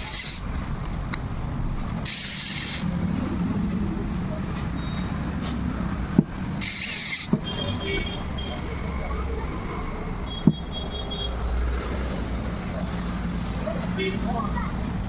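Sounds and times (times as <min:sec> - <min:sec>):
traffic rumble: 0:00.0 - 0:15.0
short hiss: 0:02.0 - 0:02.9.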